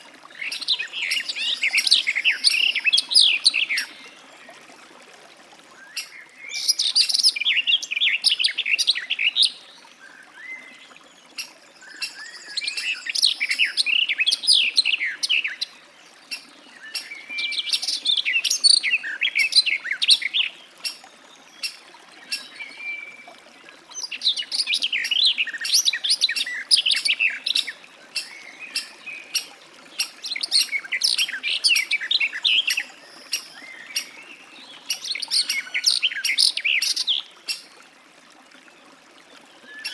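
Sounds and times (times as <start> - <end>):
warbler singing: 0.4 - 4.0, 11.4 - 15.7, 16.3 - 21.0, 24.0 - 37.7, 39.7 - 39.9.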